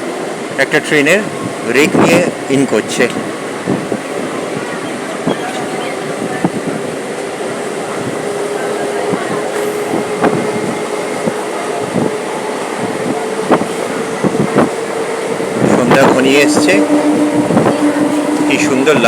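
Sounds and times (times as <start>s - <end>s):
train wheels rumbling on rail: 0.0s - 19.0s
train motor hum: 1.3s - 19.0s.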